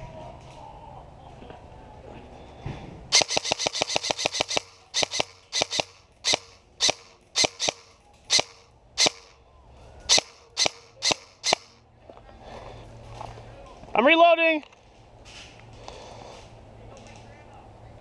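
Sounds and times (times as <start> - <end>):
airsoft gun shots: 3.1 - 9.3, 10.1 - 11.7.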